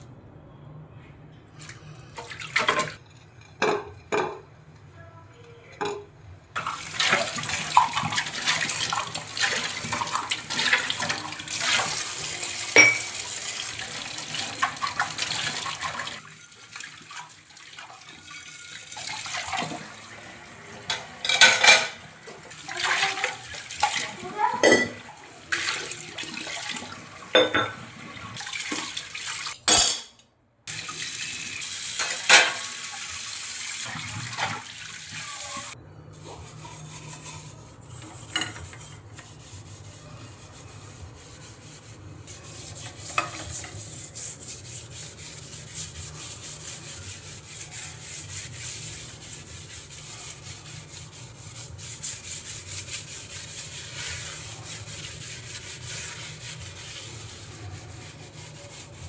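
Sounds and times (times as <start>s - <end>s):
scrubbing strokes: 6.6s - 20.1s, 22.3s - 27.4s, 35.2s - 59.0s
water running at a sink: 6.6s - 29.6s, 30.7s - 35.8s, 38.2s - 59.0s.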